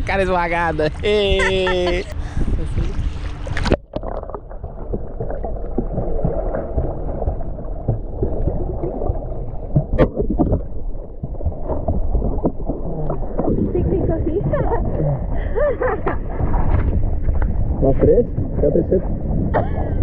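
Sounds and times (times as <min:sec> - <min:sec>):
muffled underwater rumble: 0:00.0 - 0:20.0
bubbling: 0:00.7 - 0:20.0
water surface splash: 0:02.8 - 0:13.8
underwater clicks: 0:03.4 - 0:04.4, 0:05.1 - 0:13.6.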